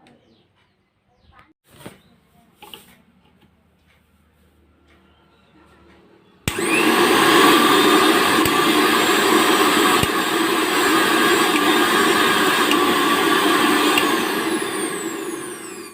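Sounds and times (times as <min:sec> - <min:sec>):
mixer grinder motor running: 0:06.4 - 0:15.9.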